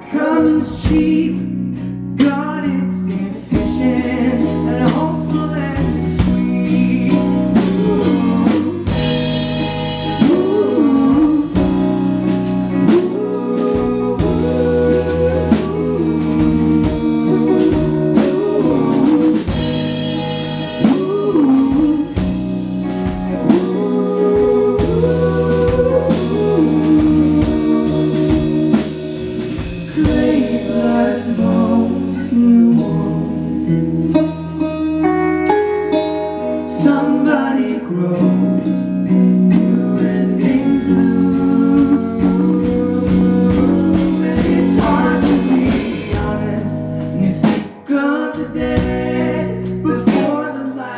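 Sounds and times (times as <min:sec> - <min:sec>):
live band playing slow song: 0:00.0 - 0:50.9
sliding melody line: 0:03.6 - 0:33.5, 0:39.4 - 0:47.5.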